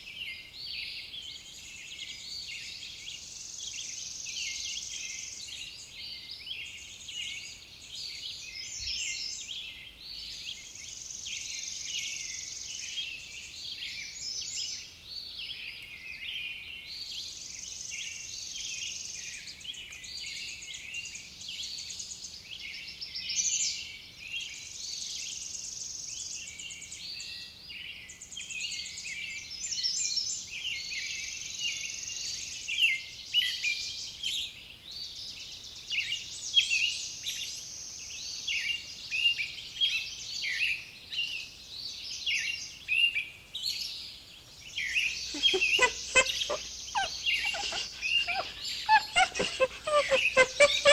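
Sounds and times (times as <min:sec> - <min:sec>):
small birds chirping: 0:44.4 - 0:50.9.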